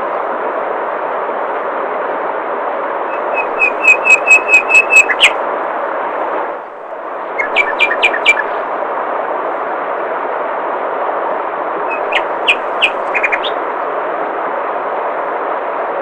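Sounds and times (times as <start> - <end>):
songbird repeating clear note: 11.9 - 13.6.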